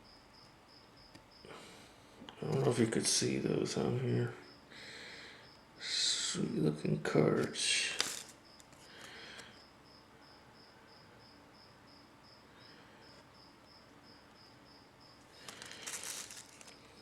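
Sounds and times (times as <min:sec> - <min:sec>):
insect chirping: 0:00.0 - 0:01.8, 0:03.8 - 0:06.6, 0:07.7 - 0:17.0
handling rustle: 0:07.9 - 0:08.9, 0:15.2 - 0:17.0.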